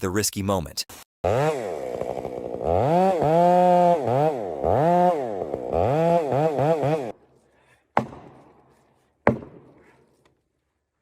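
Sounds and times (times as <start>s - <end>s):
chainsaw engine revving: 1.2s - 7.2s.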